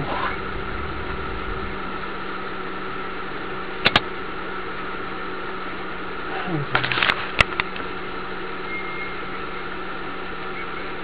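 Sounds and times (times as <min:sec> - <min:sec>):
car engine idling: 0:00.0 - 0:11.0
sharp clicks: 0:03.8 - 0:04.1.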